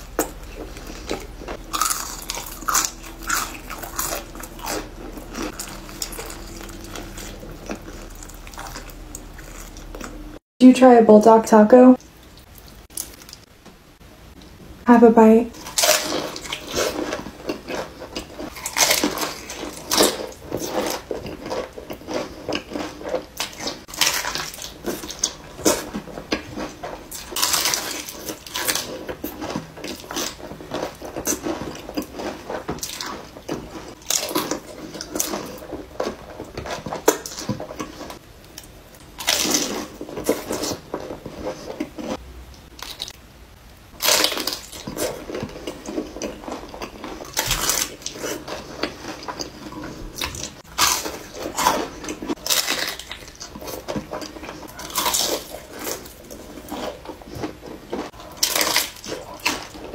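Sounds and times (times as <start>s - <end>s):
wet squishy chewing: 0.0s - 10.4s, 12.0s - 13.5s, 44.0s - 59.9s.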